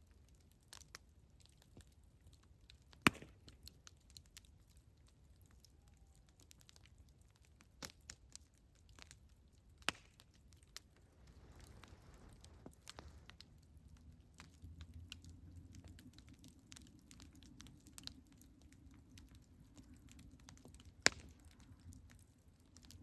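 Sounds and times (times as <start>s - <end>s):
campfire crackling: 0.0s - 23.0s
sharp pop of burning wood: 2.9s - 3.8s, 9.8s - 10.4s, 20.5s - 21.7s.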